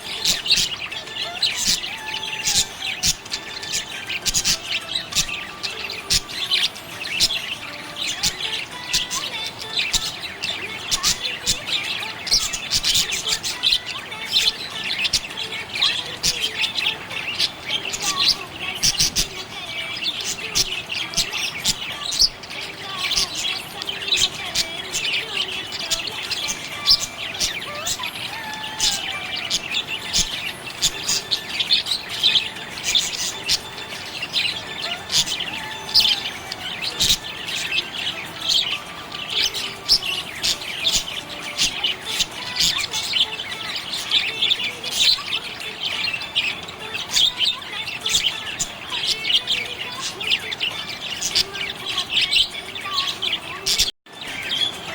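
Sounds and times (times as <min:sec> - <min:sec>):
budgerigars chirping: 0:00.0 - 0:54.9.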